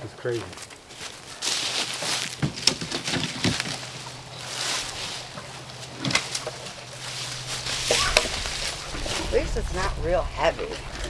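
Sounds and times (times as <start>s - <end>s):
boards rustling and scraping: 0.4s - 11.0s
sharp knocks: 2.3s - 3.9s.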